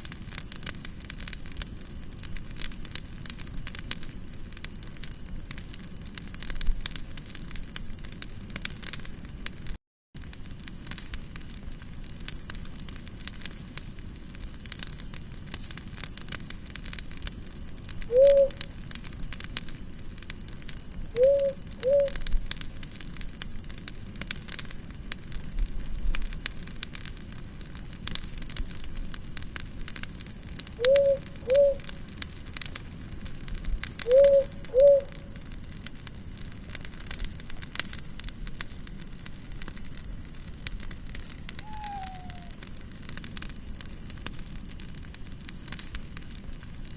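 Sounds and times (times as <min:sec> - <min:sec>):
campfire crackling: 0:00.0 - 0:46.9
cricket chirping: 0:13.2 - 0:14.2, 0:15.5 - 0:16.4, 0:21.2 - 0:22.2, 0:26.8 - 0:28.4, 0:30.8 - 0:31.8, 0:34.1 - 0:35.1, 0:41.6 - 0:42.6
low calls: 0:18.1 - 0:18.6, 0:21.2 - 0:22.2, 0:30.8 - 0:31.9, 0:34.1 - 0:35.3, 0:41.6 - 0:42.6.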